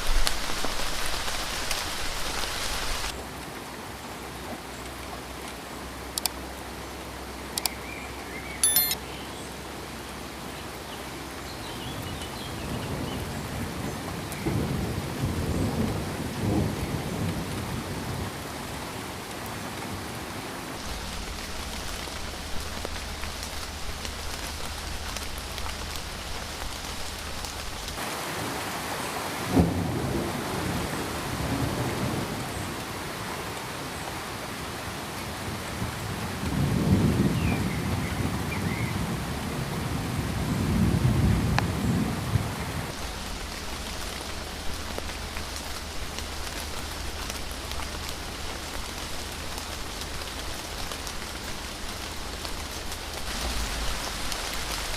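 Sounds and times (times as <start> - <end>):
steady rain: 0.0 - 54.9
sharp clicks: 7.6 - 7.8, 8.6 - 9.0
thunder rumbling: 20.8 - 28.0, 36.4 - 54.9.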